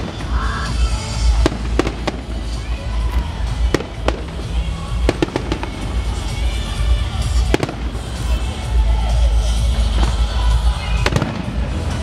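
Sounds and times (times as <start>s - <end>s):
fireworks bangs: 0.0s - 6.6s, 7.2s - 8.4s, 9.9s - 12.0s.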